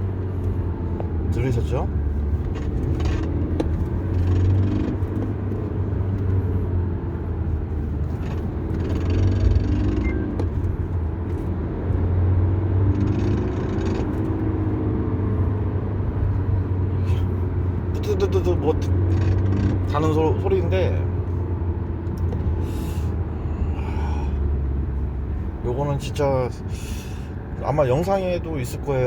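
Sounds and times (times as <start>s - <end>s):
buzzing rattle underneath car: 0.0s - 23.7s
engine and road rumble: 0.0s - 29.0s.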